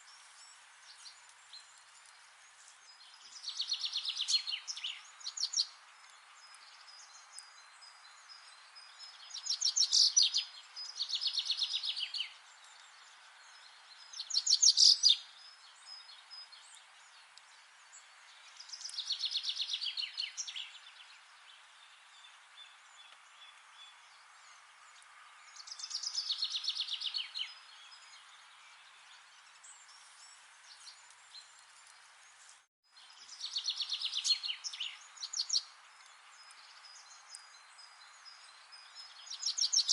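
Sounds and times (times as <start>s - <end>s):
soft forest ambience hiss: 0.0s - 39.9s
songbird trilling: 14.2s - 15.2s.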